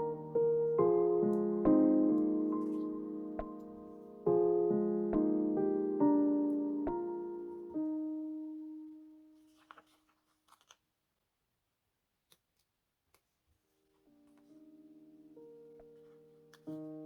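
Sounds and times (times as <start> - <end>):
soft lofi piano: 0.0 - 10.0, 13.6 - 17.0
paper rustling and clicks: 9.4 - 10.9.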